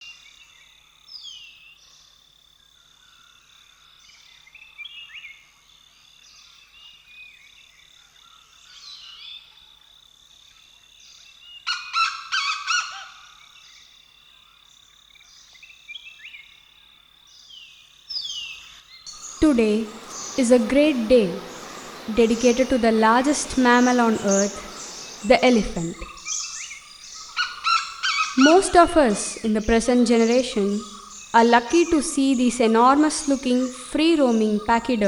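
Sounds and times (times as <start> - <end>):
birds chirping and whistling: 19.1 - 35.0
harsh bird call: 19.1 - 35.0.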